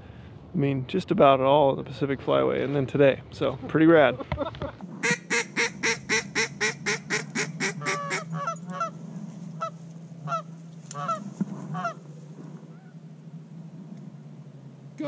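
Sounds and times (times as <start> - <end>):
duck call blown: 5.0 - 9.0.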